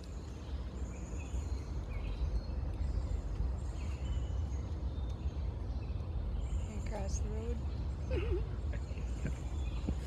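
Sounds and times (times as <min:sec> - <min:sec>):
wind on microphone: 0:09.0 - 0:10.0.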